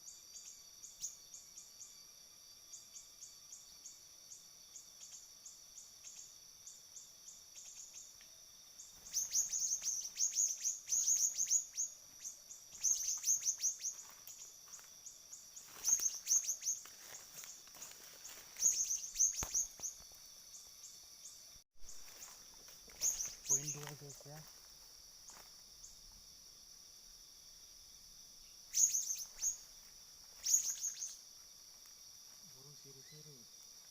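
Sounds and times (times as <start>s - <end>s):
bird chirps rapid and falling: 9.0s - 14.5s, 15.6s - 16.9s, 18.5s - 20.0s, 23.0s - 24.2s, 28.7s - 29.7s, 30.4s - 31.2s.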